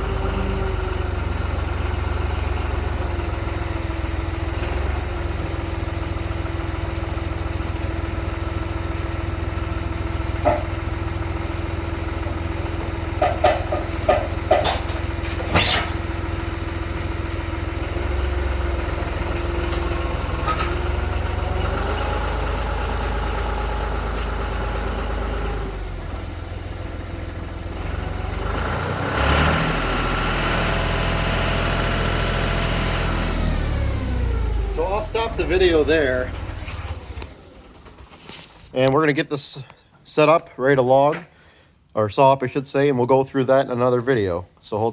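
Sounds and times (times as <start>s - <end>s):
tractor engine running: 0.0s - 38.9s
sharp metallic knocks: 10.4s - 10.9s, 13.1s - 16.0s.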